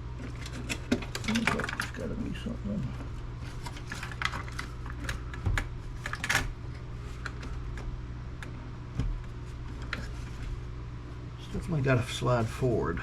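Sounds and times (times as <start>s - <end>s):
computer case clicks and clacks: 0.2s - 2.2s, 3.6s - 10.1s.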